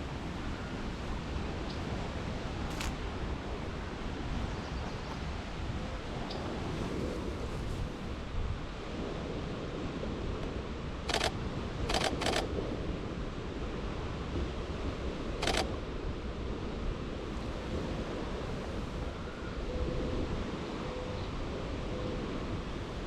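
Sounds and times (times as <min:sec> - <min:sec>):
waves: 0:00.0 - 0:23.0
wind: 0:00.0 - 0:23.0
camera shutter clicks: 0:02.7 - 0:03.0, 0:11.1 - 0:12.5, 0:15.4 - 0:15.7.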